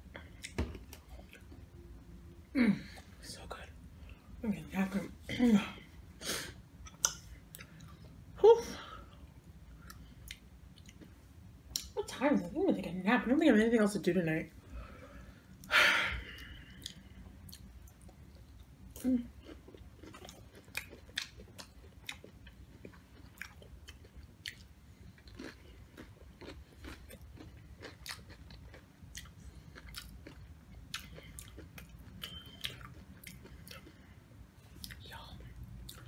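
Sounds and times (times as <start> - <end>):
crunchy chewing with mouth clicks: 0.2 - 1.7, 6.8 - 8.2, 9.8 - 12.0, 16.3 - 36.0.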